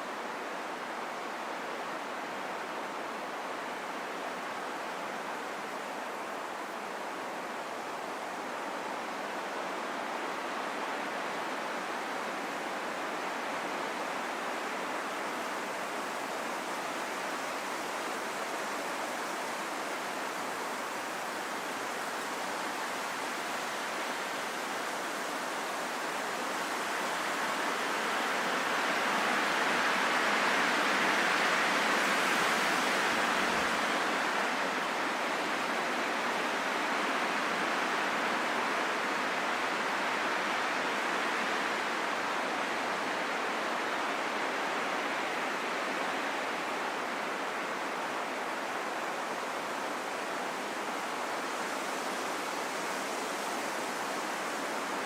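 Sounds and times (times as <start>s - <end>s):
steady rain in a forest: 0.0s - 55.0s.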